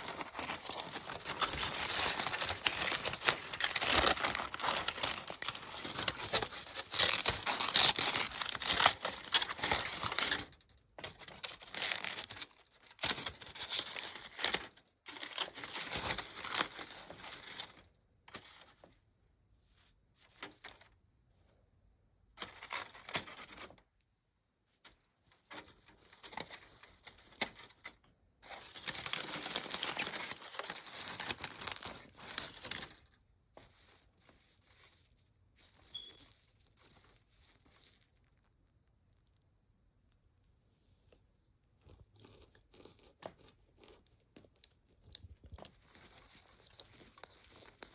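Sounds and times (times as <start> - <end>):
crunching of crunchy snack: 0.0 - 18.8, 25.6 - 33.9, 35.9 - 39.4, 41.7 - 47.9.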